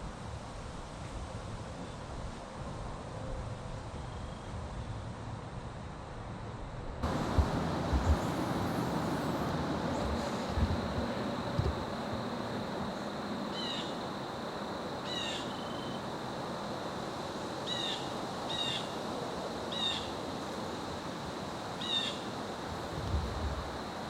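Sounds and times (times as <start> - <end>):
wind rushing: 7.0 - 12.0.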